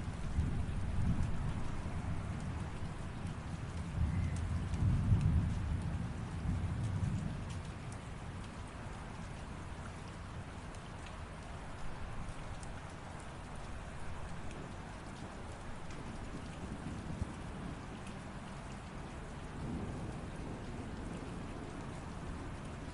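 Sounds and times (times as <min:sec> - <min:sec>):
light rain hissing: 0:00.0 - 0:22.9
raindrops ticking: 0:00.0 - 0:22.9
distant thunder rumble: 0:15.8 - 0:22.9.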